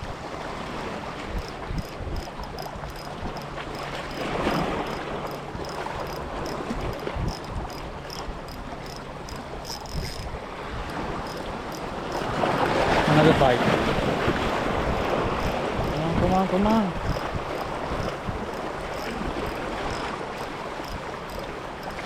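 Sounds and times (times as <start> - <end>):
wind buffeting microphone: 0.0 - 22.0
surf washing on beach: 10.3 - 22.0.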